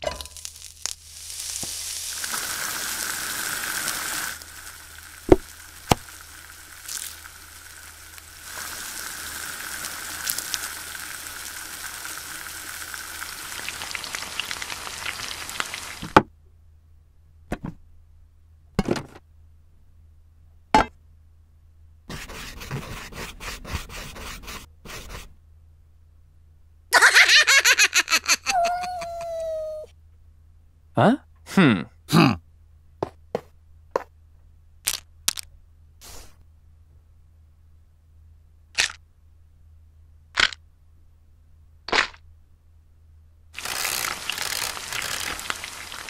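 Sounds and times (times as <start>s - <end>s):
frying sizzle in a pan: 0.0s - 16.2s, 43.6s - 46.0s
marker scribbling on paper: 22.1s - 25.3s.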